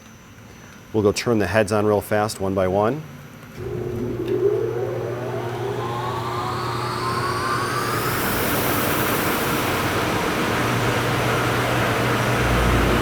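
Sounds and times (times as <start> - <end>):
belt sander motor whine: 3.6 - 13.0.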